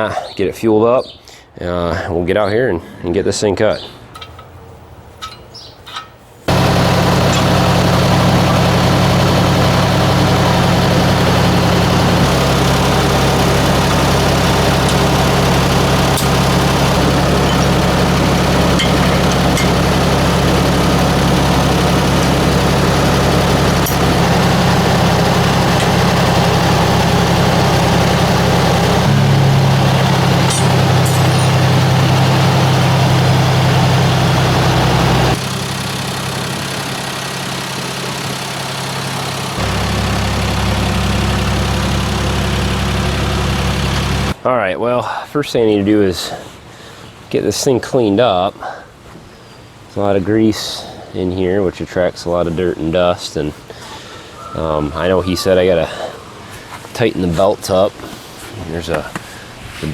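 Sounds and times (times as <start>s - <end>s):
tractor engine running: 6.5s - 44.4s.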